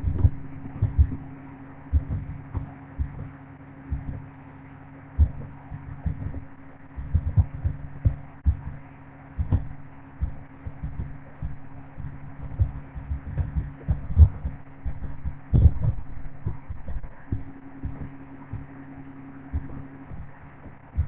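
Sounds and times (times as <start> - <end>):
low thumps: 0.0 - 3.3, 5.2 - 8.8, 9.4 - 21.0
engine humming: 0.0 - 21.0.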